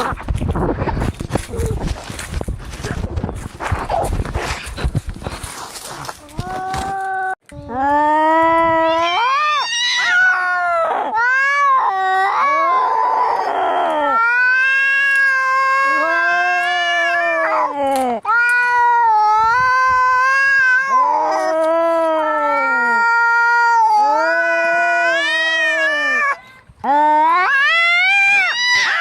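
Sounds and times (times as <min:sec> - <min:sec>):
angry cat yowling: 0:08.8 - 0:17.7, 0:18.3 - 0:26.4, 0:27.2 - 0:29.0.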